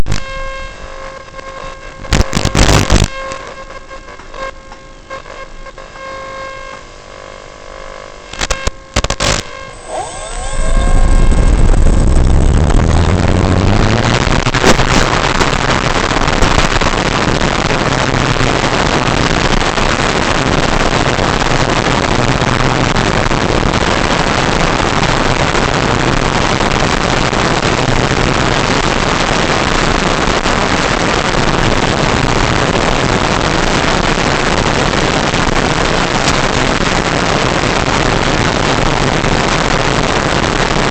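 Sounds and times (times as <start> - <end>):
faint steady tones: 3.2 - 18.0
wind noise: 9.1 - 40.9
model plane motor and propeller: 9.4 - 15.2.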